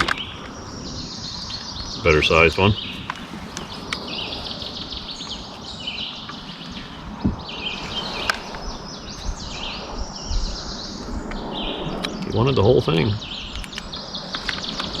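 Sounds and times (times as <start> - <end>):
sharp clicks: 0.0 - 0.6, 11.3 - 15.0
songbirds chirping and trilling: 0.0 - 15.0.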